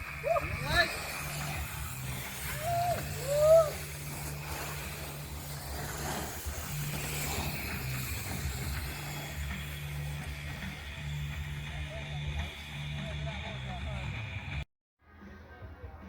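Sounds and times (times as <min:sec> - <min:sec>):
bike tyres squealing: 0:00.0 - 0:14.0.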